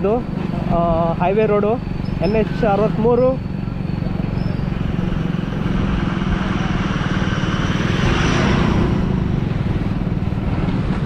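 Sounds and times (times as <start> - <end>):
motorcycle engine running: 0.0 - 11.0
road noise: 0.0 - 11.0
rushing noise: 4.8 - 11.0.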